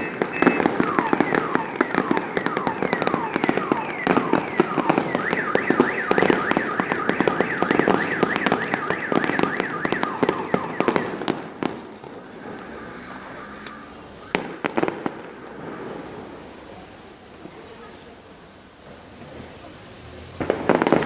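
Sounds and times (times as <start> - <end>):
scattered firework pops: 0.0 - 12.3, 14.2 - 16.1, 20.4 - 21.0
car alarm warbling: 0.0 - 14.6
high firework whistle: 0.0 - 16.6, 18.8 - 21.0
fireworks crackling and banging: 0.0 - 21.0.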